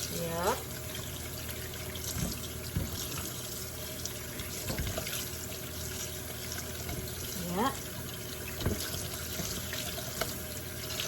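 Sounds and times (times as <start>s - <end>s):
tap running into sink: 2.0s - 3.5s, 4.2s - 5.3s, 8.5s - 11.0s
soft knocks and splashes: 2.1s - 3.3s, 4.4s - 5.2s, 8.5s - 9.6s.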